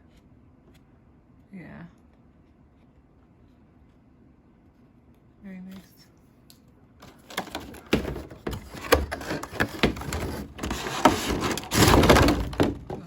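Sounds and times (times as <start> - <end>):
packaging rustling: 7.0 - 12.9
plastic packaging clicking and scraping: 7.0 - 13.0.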